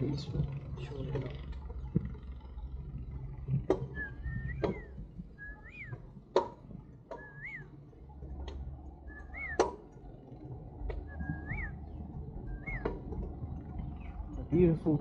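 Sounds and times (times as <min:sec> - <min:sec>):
bird whistling call: 0:03.9 - 0:06.0, 0:07.1 - 0:07.7, 0:09.1 - 0:09.8, 0:11.0 - 0:13.1.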